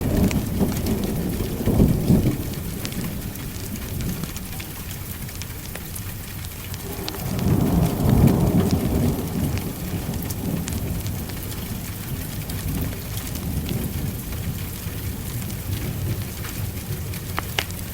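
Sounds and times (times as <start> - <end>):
steady rain: 0.0 - 17.9
thunder rolling: 6.4 - 16.9.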